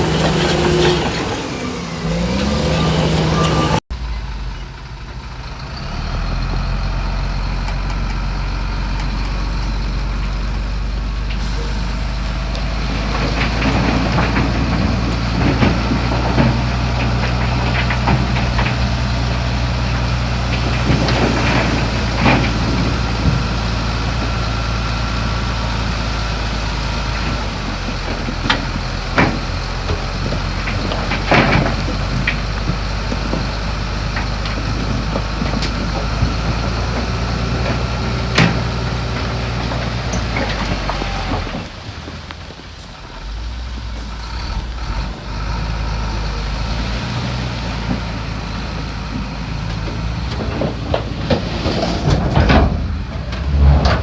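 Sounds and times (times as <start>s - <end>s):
metallic clanks and squeaks: 0.0s - 5.9s
diesel machinery running: 0.0s - 54.0s.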